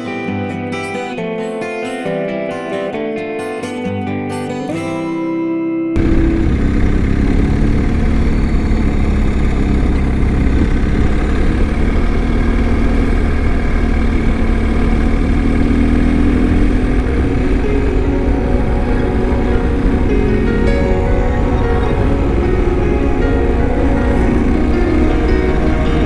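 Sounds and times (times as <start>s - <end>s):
guitar music: 0.0s - 26.0s
motorcycle engine running: 6.0s - 26.0s
road noise: 6.0s - 26.0s.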